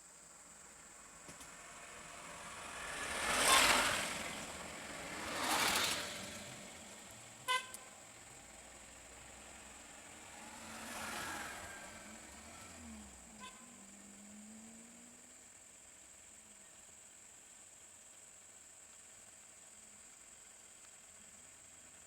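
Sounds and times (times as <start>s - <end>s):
road vehicles passing by: 0.4s - 18.5s
car horn toot: 7.4s - 8.0s, 13.3s - 13.9s.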